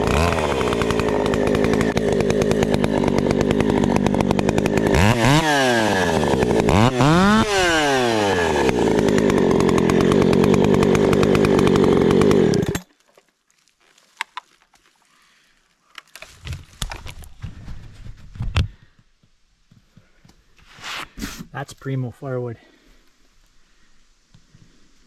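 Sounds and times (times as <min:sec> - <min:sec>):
chainsaw running at high revs: 0:00.0 - 0:12.9.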